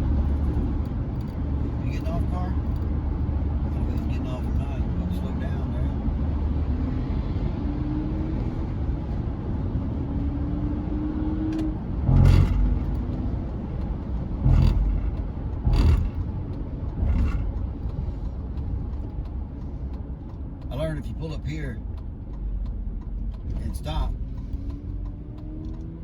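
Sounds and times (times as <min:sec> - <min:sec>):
road and engine noise in cab: 0:00.0 - 0:26.0
sharp knocks or jolts: 0:12.1 - 0:13.2, 0:14.4 - 0:16.3, 0:17.0 - 0:17.7.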